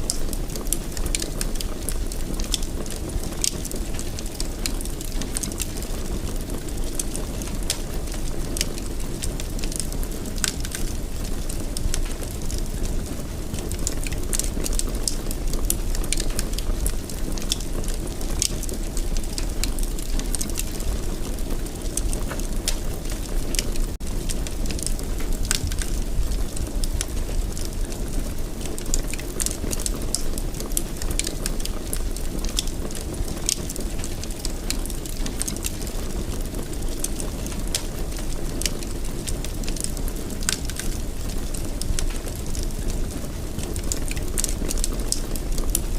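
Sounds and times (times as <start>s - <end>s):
fire crackling and popping: 0.0s - 45.9s
fire flames rumbling: 0.0s - 45.9s.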